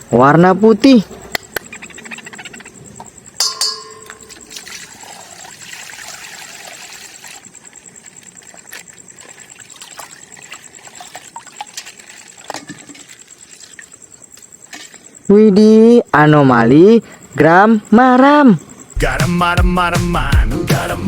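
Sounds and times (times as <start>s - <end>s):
water pouring and trickling: 3.8s - 15.0s.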